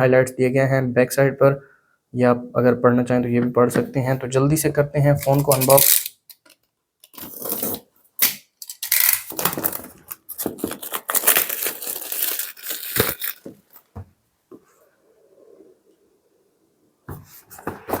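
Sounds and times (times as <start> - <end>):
packaging tearing: 5.2 - 6.1, 7.1 - 13.9
cardboard and plastic crinkling: 9.0 - 13.9.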